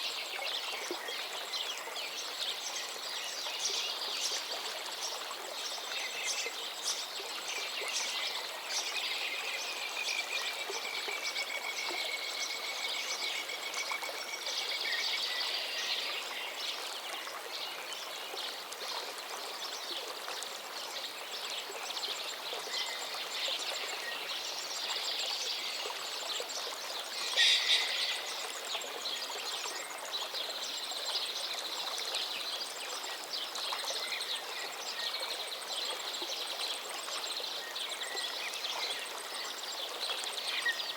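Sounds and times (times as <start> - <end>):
stream rushing: 20.1 - 40.9
birds chirping and calling: 27.2 - 28.4.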